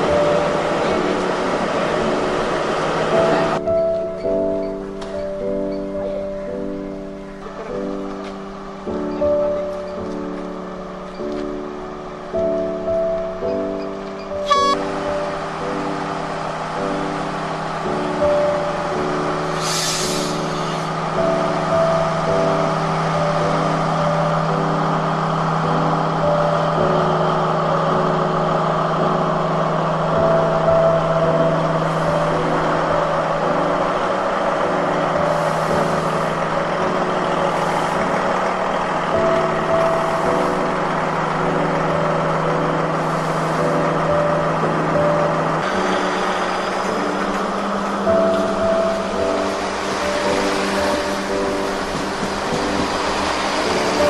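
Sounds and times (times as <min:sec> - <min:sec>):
diesel train engine humming: 0:00.0 - 0:54.0
short hissing bursts: 0:19.6 - 0:20.4.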